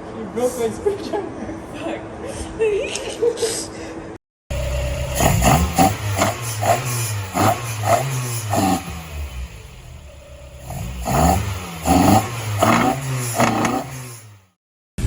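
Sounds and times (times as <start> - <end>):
engine idling and revving: 4.5 - 14.6.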